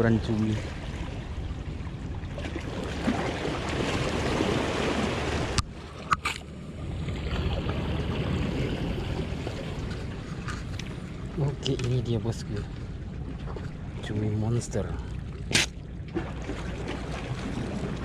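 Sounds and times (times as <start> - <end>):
low hum: 0.0 - 18.0
water rushing: 2.4 - 18.0.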